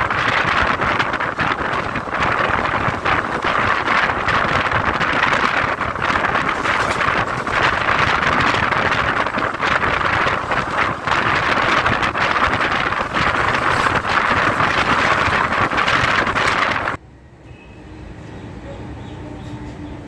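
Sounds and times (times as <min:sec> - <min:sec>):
wind buffeting microphone: 0:00.0 - 0:17.0
train wheel and air noise: 0:00.0 - 0:20.0.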